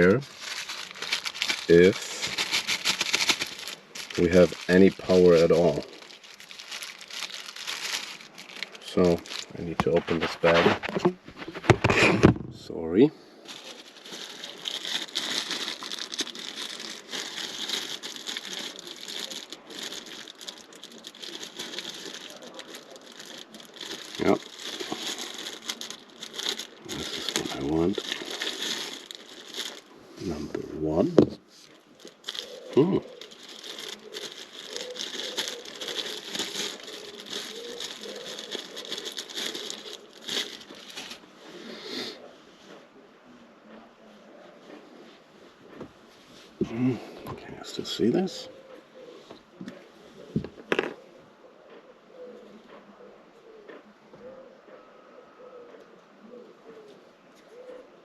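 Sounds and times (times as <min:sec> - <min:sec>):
bag crinkling and rustling: 0:00.0 - 0:12.3, 0:13.4 - 0:41.8, 0:50.4 - 0:51.0.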